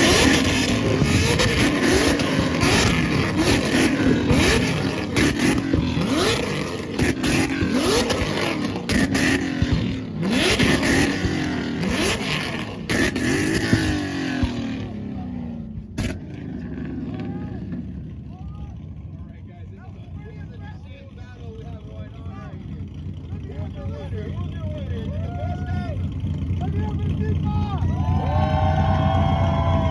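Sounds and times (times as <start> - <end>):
sharp exhaust cracks: 0.0 - 15.1, 15.8 - 18.1
car engine revving: 0.0 - 18.2.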